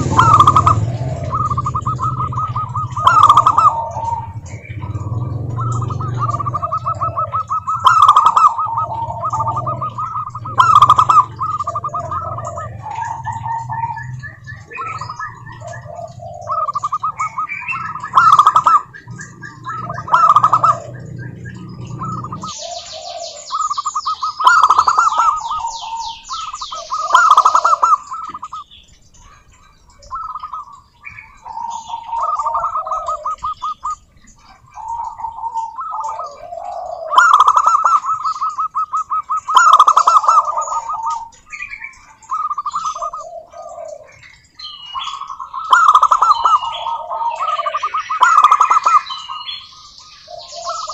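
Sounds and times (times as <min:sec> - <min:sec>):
doves cooing: 0:00.0 - 0:50.9
small bird chirping: 0:00.0 - 0:50.9.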